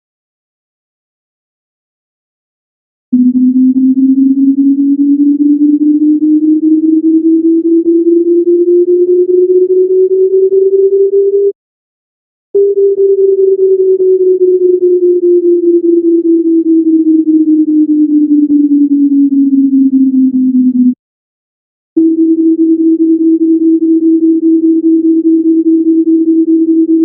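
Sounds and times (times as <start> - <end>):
falling electronic tone: 3.2 - 11.5, 12.6 - 21.0
rising electronic tone: 3.2 - 11.5, 12.6 - 21.0.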